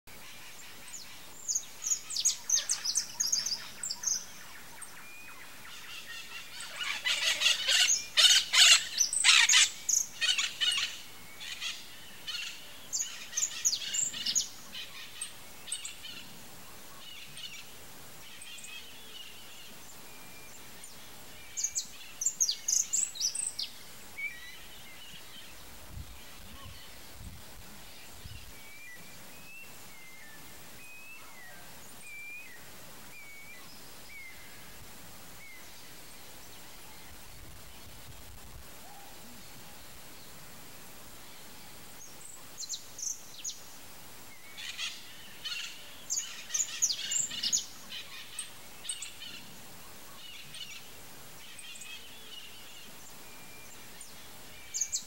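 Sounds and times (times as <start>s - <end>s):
birds chattering: 5.4s - 17.6s.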